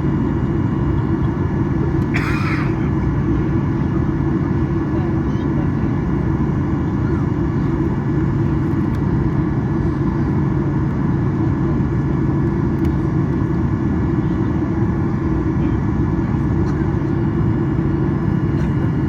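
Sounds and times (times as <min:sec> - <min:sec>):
airplane cabin rumble and hum: 0:00.0 - 0:19.0.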